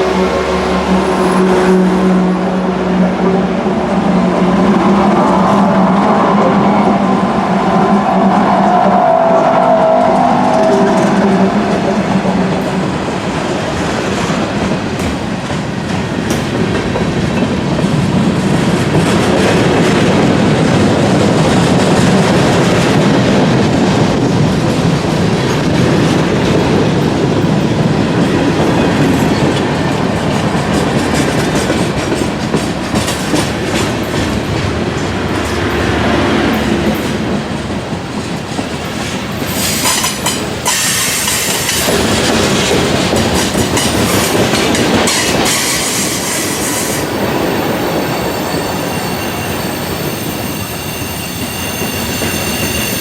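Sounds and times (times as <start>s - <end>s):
freight cars rumbling and clattering: 10.2s - 48.2s.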